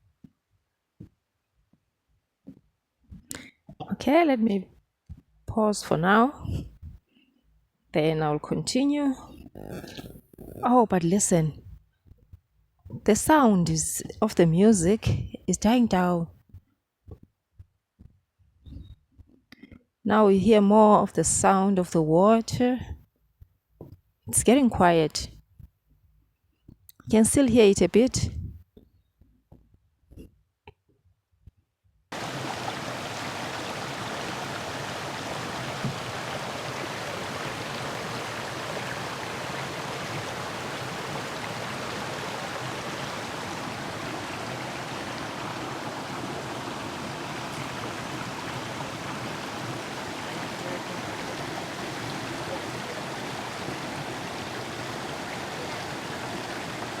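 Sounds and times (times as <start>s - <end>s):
river water rushing: 32.2s - 57.0s.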